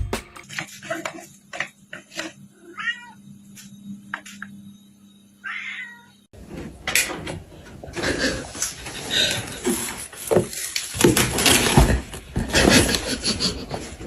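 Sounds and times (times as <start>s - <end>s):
cat meowing: 2.7s - 3.2s, 5.4s - 6.2s.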